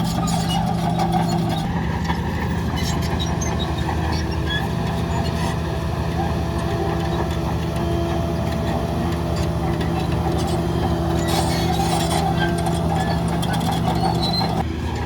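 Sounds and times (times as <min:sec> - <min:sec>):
diesel machinery running: 0:00.0 - 0:15.0.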